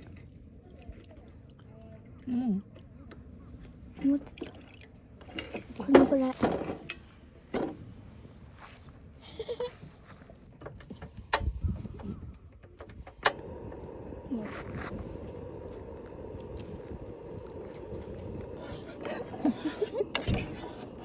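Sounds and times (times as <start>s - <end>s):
gas burner hissing: 10.8s - 21.0s.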